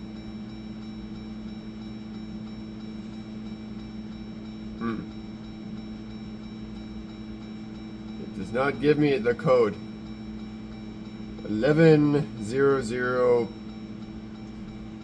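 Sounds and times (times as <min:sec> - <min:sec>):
brief murmur: 0:04.8 - 0:05.1.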